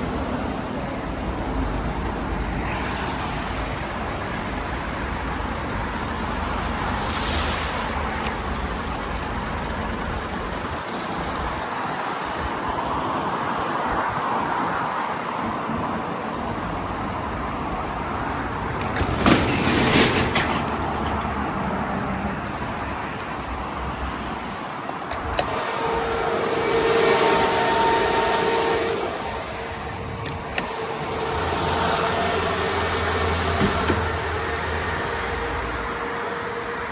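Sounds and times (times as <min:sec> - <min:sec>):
steady hum: 0:00.0 - 0:12.5, 0:25.4 - 0:36.9
motor vehicle running: 0:00.0 - 0:13.8, 0:25.2 - 0:36.9.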